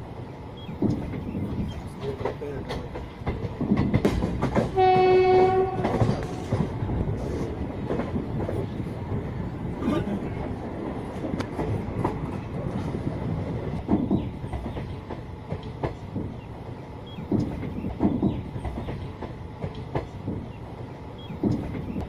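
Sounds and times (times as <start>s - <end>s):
train coaches rattling and rumbling: 0.0s - 22.0s
train horn blast: 4.7s - 6.5s.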